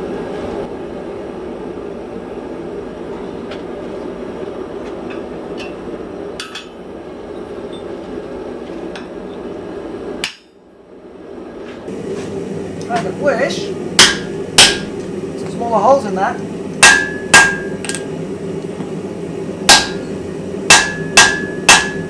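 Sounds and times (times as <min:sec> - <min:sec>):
sharp metal clank: 0:14.0 - 0:14.9, 0:16.8 - 0:18.0, 0:19.7 - 0:20.1, 0:20.7 - 0:22.0.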